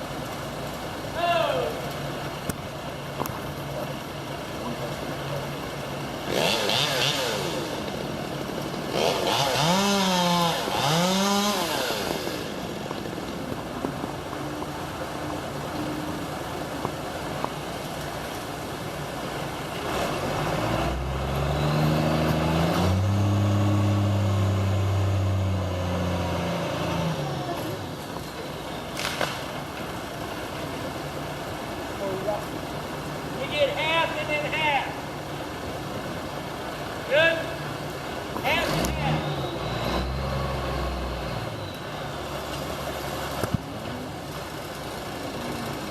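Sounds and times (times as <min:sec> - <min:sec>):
deeper loud engine: 0:03.9 - 0:17.8, 0:19.1 - 0:28.0, 0:38.5 - 0:45.9
chainsaw engine: 0:06.2 - 0:08.1, 0:08.9 - 0:12.8.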